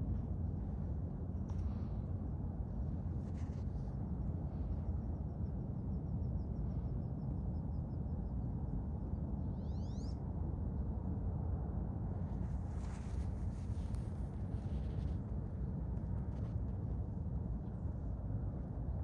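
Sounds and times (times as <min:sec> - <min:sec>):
steady low rumble: 0:00.0 - 0:09.0, 0:10.8 - 0:19.0.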